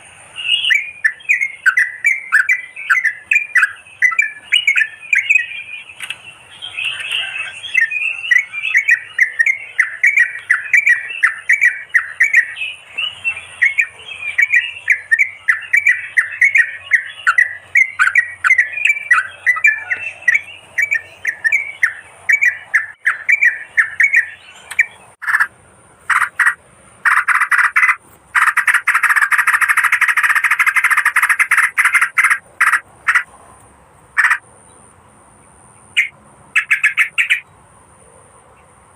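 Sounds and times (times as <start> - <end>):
bird chattering calls: 0.0 - 33.3, 34.2 - 34.4, 36.0 - 37.4
bird harsh scolding: 26.1 - 33.3, 34.2 - 34.4.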